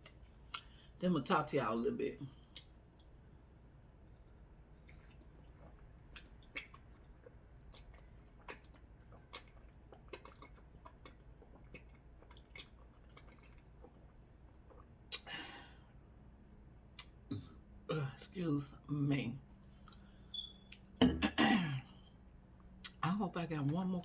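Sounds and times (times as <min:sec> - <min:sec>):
person chewing with mouth smacks: 0:04.1 - 0:15.3, 0:16.9 - 0:17.6, 0:19.7 - 0:21.0.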